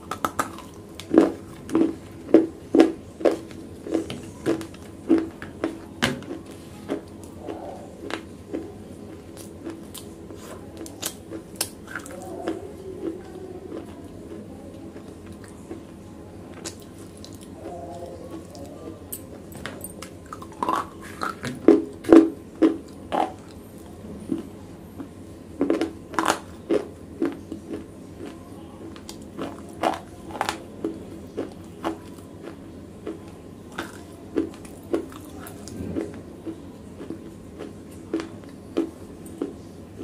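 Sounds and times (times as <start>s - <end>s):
chewing hard crunchy pieces: 0.0s - 40.0s.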